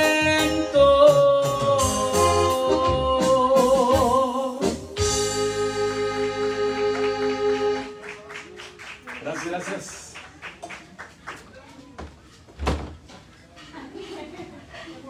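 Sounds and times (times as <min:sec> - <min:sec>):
electronic keyboard chords: 0:00.0 - 0:08.3.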